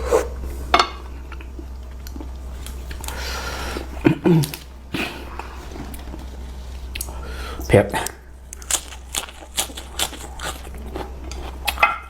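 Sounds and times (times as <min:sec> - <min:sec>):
person chewing noodles: 0:01.1 - 0:07.2, 0:08.4 - 0:12.0.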